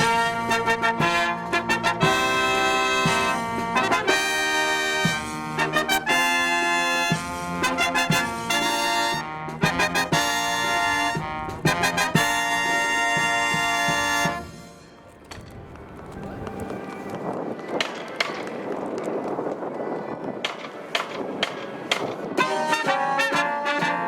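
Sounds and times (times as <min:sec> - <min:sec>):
marching brass band fanfare: 0:00.0 - 0:15.2, 0:22.3 - 0:24.0
drum strokes: 0:00.0 - 0:15.4.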